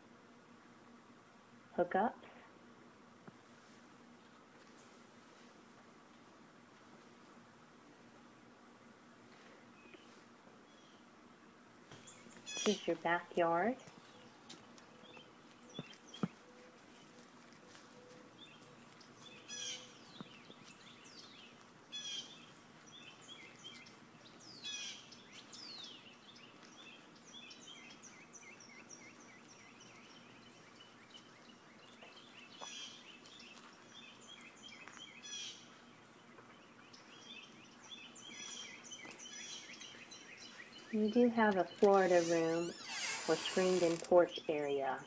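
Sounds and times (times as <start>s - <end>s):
faint background hiss: 0.0s - 45.0s
songbirds singing: 9.6s - 11.1s, 11.9s - 45.0s.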